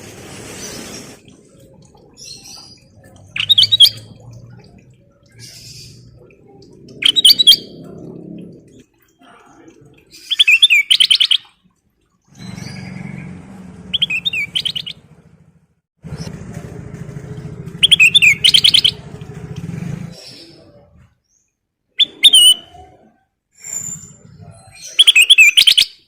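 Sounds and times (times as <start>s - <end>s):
low engine-like drone: 1.2s - 9.0s, 12.4s - 21.0s
bulbul chirping: 1.5s - 7.9s, 10.1s - 11.6s, 13.9s - 15.0s, 17.7s - 19.1s.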